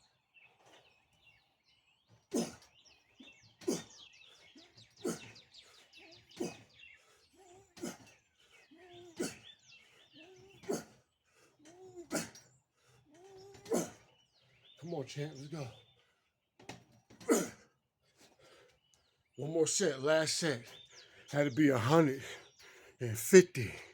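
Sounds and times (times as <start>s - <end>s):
small birds chirping: 0.0s - 23.9s.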